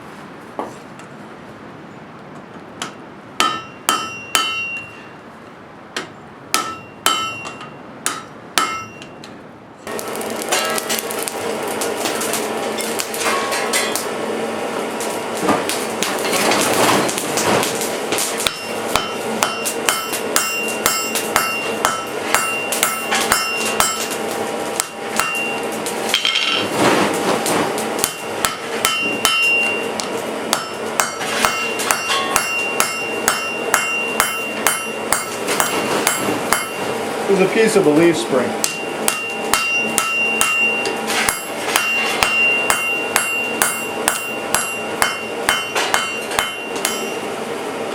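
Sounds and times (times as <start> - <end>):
hammer striking steel on anvil: 2.8 - 5.1, 6.0 - 11.4, 12.8 - 14.1, 18.2 - 26.6, 28.0 - 37.0, 38.6 - 47.3
anvil ringing: 3.4 - 5.1, 6.6 - 9.2, 18.4 - 24.2, 24.8 - 26.6, 28.0 - 37.0, 38.6 - 47.3.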